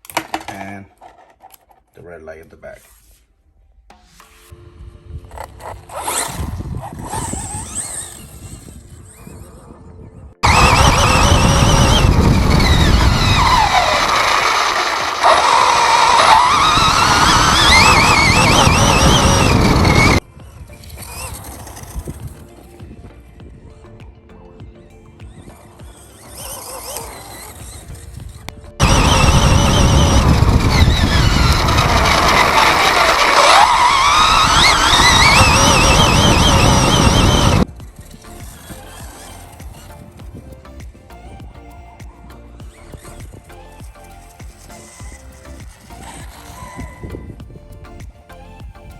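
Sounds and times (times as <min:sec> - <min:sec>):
electric motor whining: 0:04.5 - 0:23.2, 0:24.7 - 0:40.6, 0:42.6 - 0:47.7
rough rumbling noise: 0:04.5 - 0:23.3, 0:26.2 - 0:41.4.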